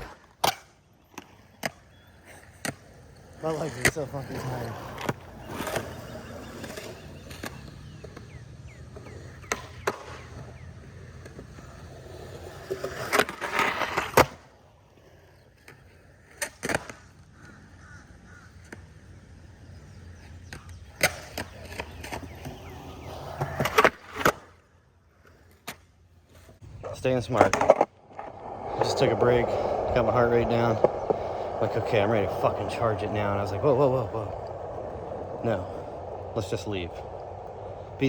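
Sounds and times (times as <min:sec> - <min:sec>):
skateboard clacks: 0:00.0 - 0:14.5, 0:26.8 - 0:38.0
skateboard wheels rolling on concrete: 0:00.0 - 0:38.0.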